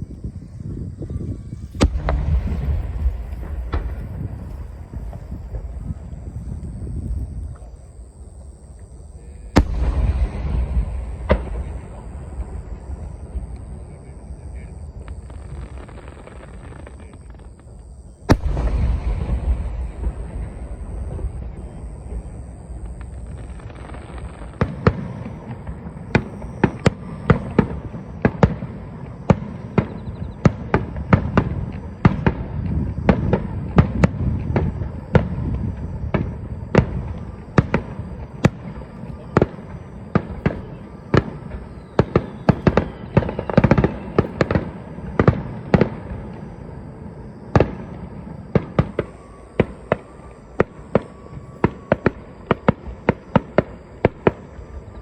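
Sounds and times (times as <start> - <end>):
continuous low rumble: 0.0 - 42.9
fireworks bursting with sharp bangs: 0.0 - 55.0.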